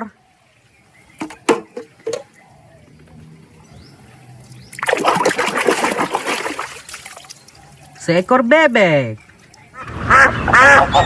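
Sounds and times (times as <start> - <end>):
water splashing: 3.1 - 11.0.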